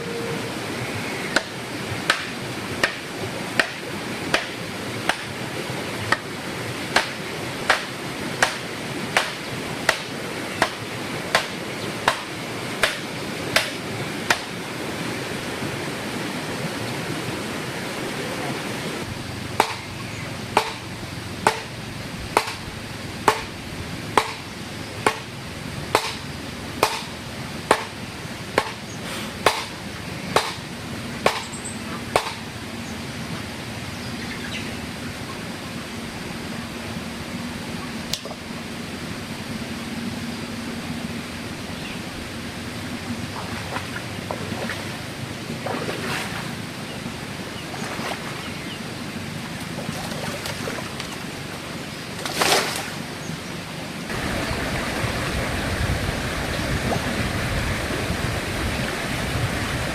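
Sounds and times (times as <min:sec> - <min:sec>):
steady background hiss: 0:00.0 - 0:59.9
hand tool striking: 0:19.6 - 0:19.9, 0:20.6 - 0:21.7, 0:23.3 - 0:23.5, 0:24.2 - 0:24.4.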